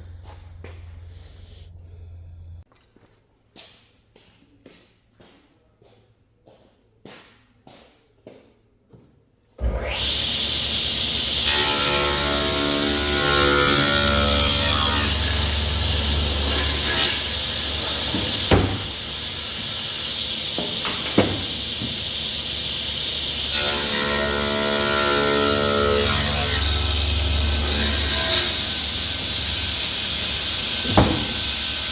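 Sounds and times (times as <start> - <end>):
power tool cutting wood: 9.6 - 31.9
sharp knocks: 17.9 - 19.0, 20.6 - 22.0, 30.9 - 31.4.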